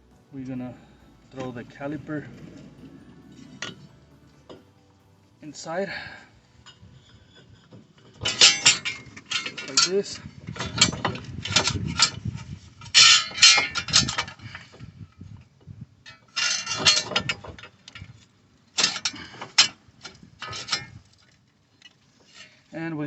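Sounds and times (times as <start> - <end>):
metal brake parts clinking: 6.0 - 12.2.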